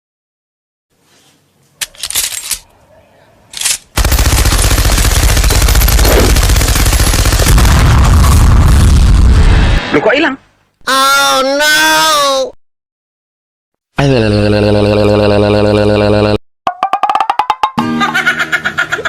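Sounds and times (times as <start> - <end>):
loud rapid rattling: 4.0 - 7.9.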